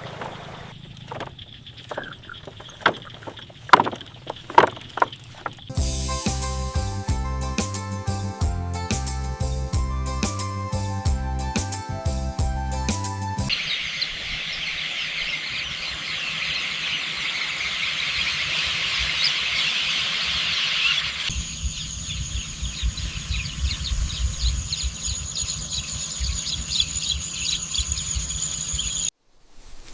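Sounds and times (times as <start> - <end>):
chorus of high chirping calls: 13.5 - 29.1.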